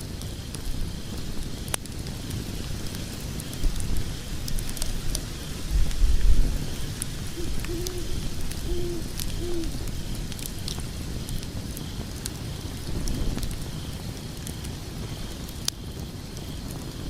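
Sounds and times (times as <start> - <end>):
fire crackling and popping: 0.0 - 17.0
logs burning in a fireplace: 0.0 - 17.0
short low hoots: 7.4 - 9.8.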